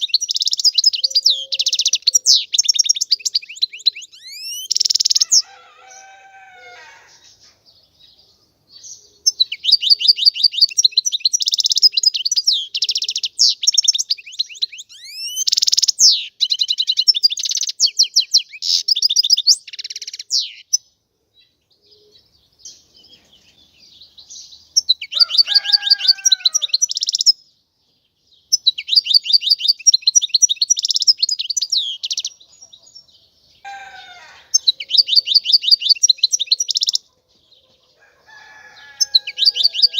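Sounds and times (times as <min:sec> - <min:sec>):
goldfinch singing: 0:00.0 - 0:06.2, 0:08.8 - 0:20.9, 0:22.6 - 0:27.4, 0:28.5 - 0:33.0, 0:33.7 - 0:37.0, 0:38.8 - 0:39.9.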